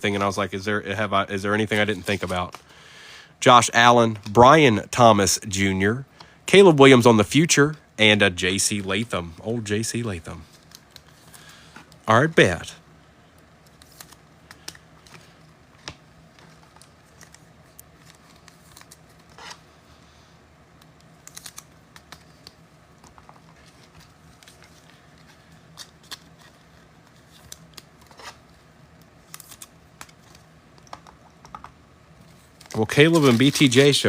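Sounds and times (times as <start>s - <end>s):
trading cards and foil wrapper handled: 13.6s - 15.6s, 16.2s - 19.7s, 20.8s - 31.0s, 32.2s - 34.0s.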